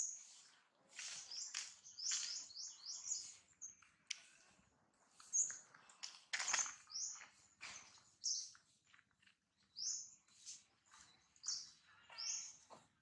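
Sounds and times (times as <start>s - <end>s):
bird chirping: 0.0s - 3.9s, 6.5s - 8.7s, 9.6s - 12.7s.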